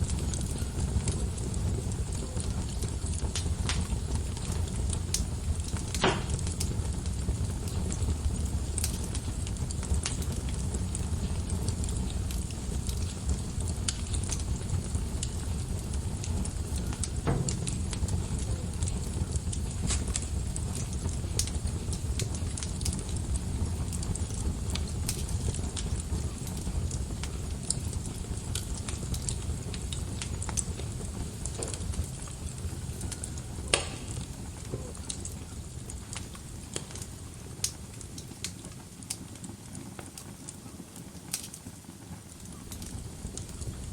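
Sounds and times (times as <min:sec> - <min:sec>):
fire crackling and popping: 0:00.0 - 0:43.9
fire flames rumbling: 0:00.0 - 0:43.9
sharp fire pop: 0:02.8 - 0:08.0, 0:11.5 - 0:21.6, 0:29.7 - 0:35.4.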